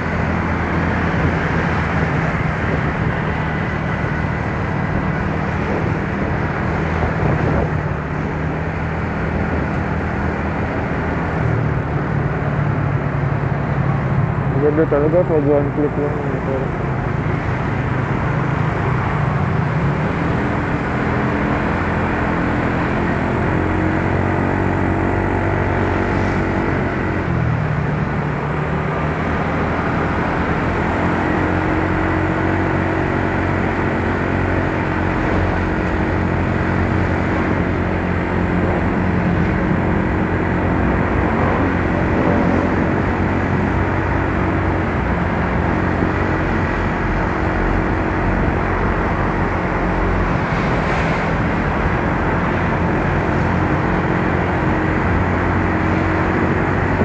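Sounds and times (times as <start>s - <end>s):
wind noise on microphone: 0.0s - 12.8s, 34.3s - 57.0s.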